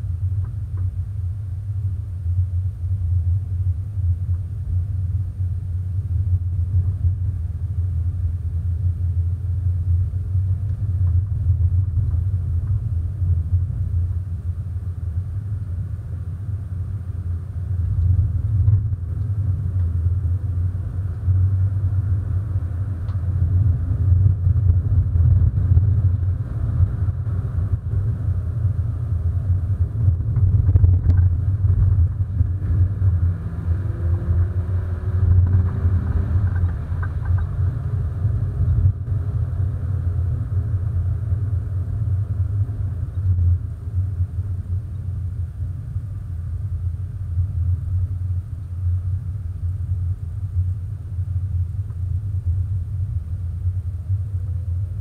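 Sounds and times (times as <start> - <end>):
car engine low rumble: 0.0 - 55.0
road noise: 9.9 - 52.1.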